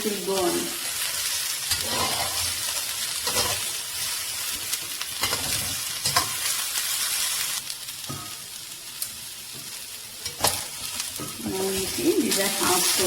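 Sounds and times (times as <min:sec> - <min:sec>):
vegetables sizzling in oil: 0:00.0 - 0:13.0
spatula scraping a pan: 0:01.2 - 0:08.4.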